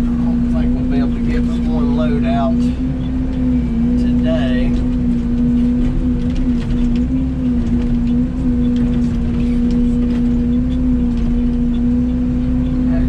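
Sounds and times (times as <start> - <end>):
mini excavator running: 0.0 - 13.0.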